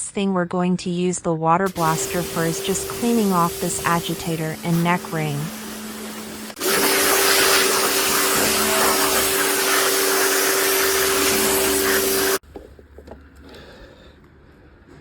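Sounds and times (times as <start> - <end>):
pressure washer motor hum: 1.7 - 12.4
water jet hissing: 1.7 - 12.4.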